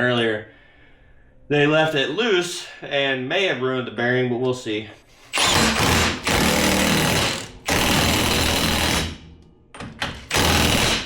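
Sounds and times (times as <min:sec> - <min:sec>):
impact wrench hammering: 0:05.4 - 0:11.0.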